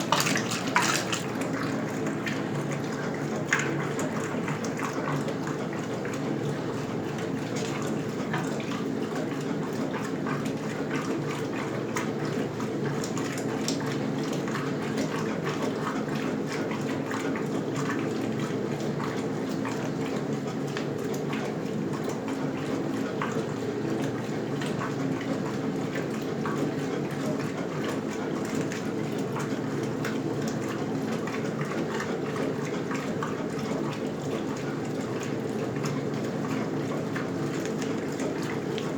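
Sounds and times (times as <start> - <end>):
water splashing: 0.0 - 4.9
washing machine motor hum: 0.0 - 38.9.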